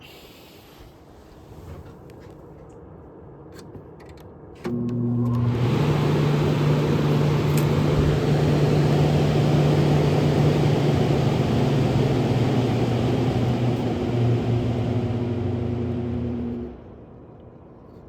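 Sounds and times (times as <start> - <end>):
motor hum: 4.7 - 17.1
air rushing from fan: 5.4 - 16.9.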